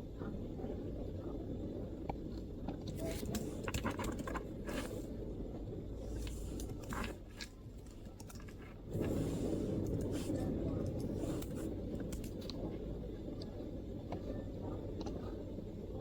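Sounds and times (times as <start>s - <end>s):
laptop keyboard typing: 3.0s - 4.8s, 9.8s - 12.5s.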